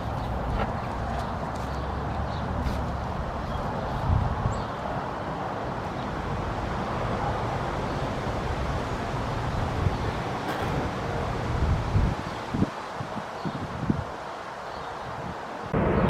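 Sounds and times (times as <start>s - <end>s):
low outdoor rumble: 15.7s - 16.0s.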